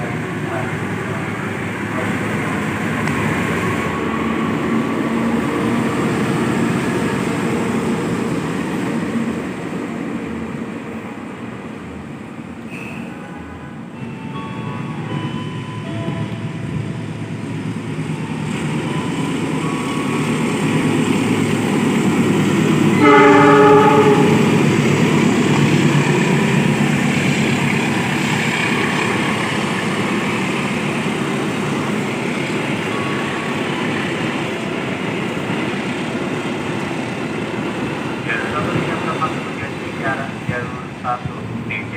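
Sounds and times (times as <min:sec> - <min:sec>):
train rumbling past: 0:00.0 - 0:41.9
train horn: 0:22.9 - 0:24.8.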